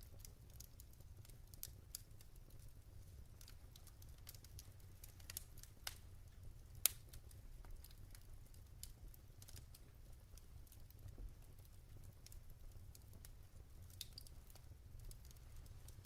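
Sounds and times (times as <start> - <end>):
logs crackling in fireplace: 0.0 - 16.0.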